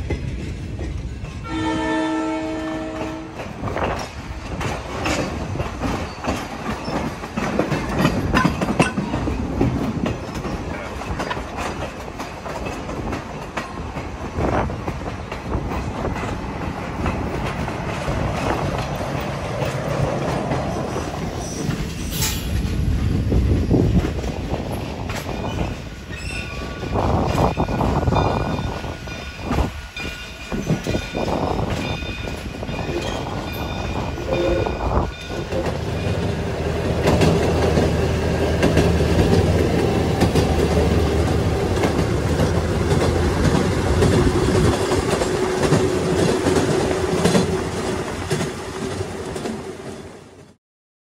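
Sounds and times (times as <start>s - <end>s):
train drone with held tone: 0.0s - 50.6s
train wheels on rails: 0.0s - 50.6s
wheels squealing on curve: 25.5s - 26.8s.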